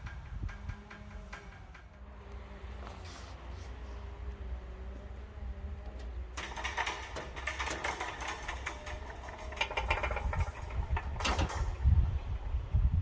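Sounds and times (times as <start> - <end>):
rattling clatter: 0.0 - 3.1, 6.3 - 13.0.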